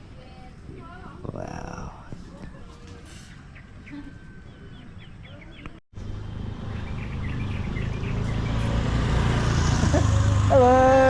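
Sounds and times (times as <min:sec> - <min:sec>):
outdoor noise: 0:00.0 - 0:11.0
small birds chirping: 0:00.8 - 0:09.1
vehicle engine hum: 0:05.5 - 0:11.0.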